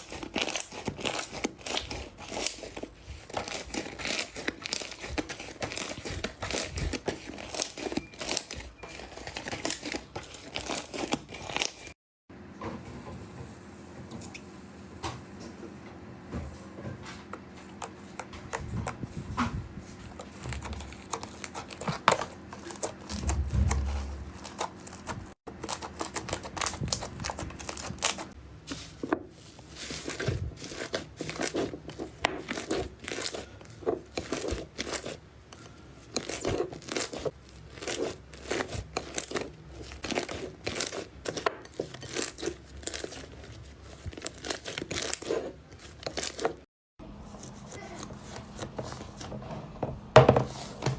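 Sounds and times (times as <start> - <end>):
slime crackling and squelching: 0.0 - 12.0, 19.8 - 46.7.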